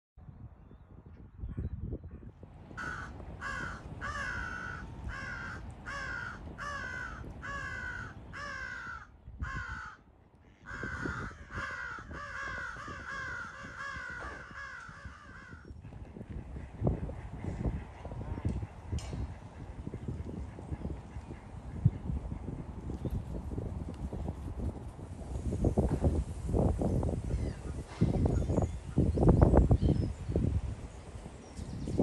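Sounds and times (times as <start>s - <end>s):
crow cawing: 2.8s - 15.7s.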